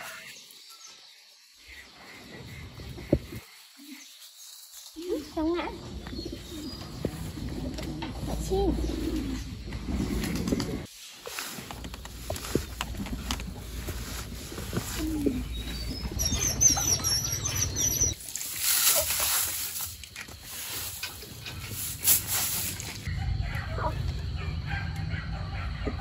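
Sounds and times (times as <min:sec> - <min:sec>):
small birds chirping: 0:00.0 - 0:10.9, 0:11.7 - 0:18.2.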